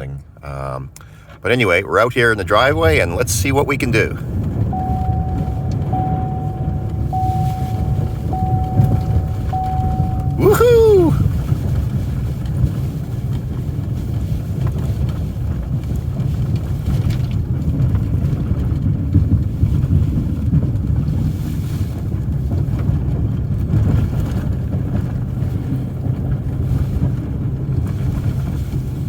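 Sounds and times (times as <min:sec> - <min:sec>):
plow pushing through snow: 0:04.2 - 0:29.0
snowplow engine running: 0:04.3 - 0:11.2.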